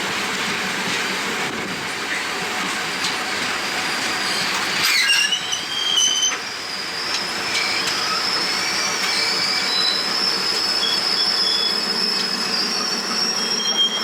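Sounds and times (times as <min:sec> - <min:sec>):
wind rushing past train window: 0:00.0 - 0:13.2
train wheels clattering on rails: 0:00.0 - 0:14.0
high wheel squeal: 0:03.7 - 0:14.0.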